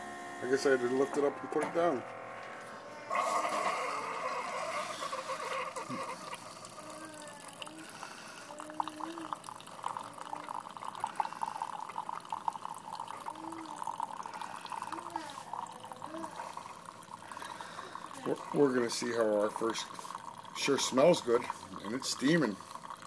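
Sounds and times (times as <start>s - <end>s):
coffee trickling into a mug: 3.1s - 23.0s.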